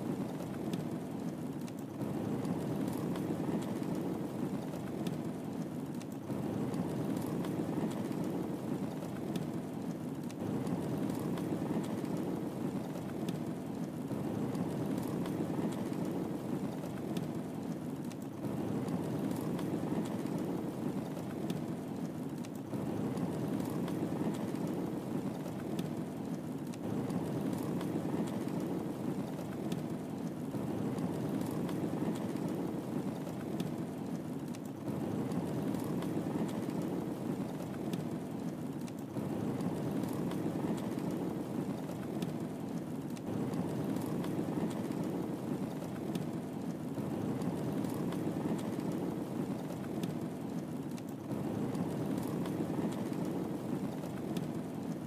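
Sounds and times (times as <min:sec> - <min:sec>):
fire crackling and popping: 0:00.0 - 0:55.0
low rush of flame: 0:00.0 - 0:55.0.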